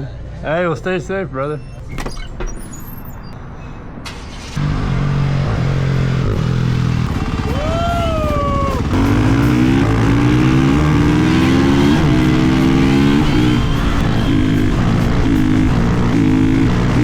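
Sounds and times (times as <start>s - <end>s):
motorcycle engine accelerating: 4.6s - 17.0s.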